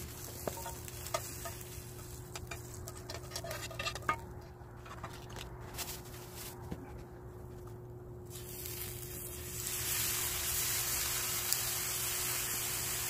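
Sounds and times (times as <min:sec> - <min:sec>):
meat sizzling in a frying pan: 0:08.3 - 0:13.0.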